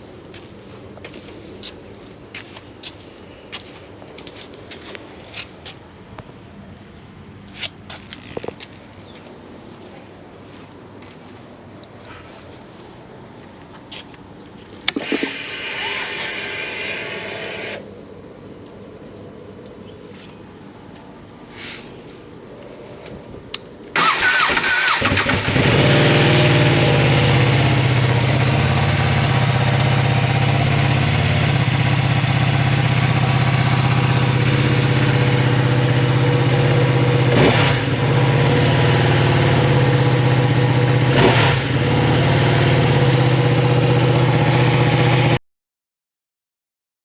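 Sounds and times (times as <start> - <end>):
motorcycle starter cranking: 14.9 - 17.8, 24.0 - 25.7
motorcycle engine idling: 25.0 - 45.4.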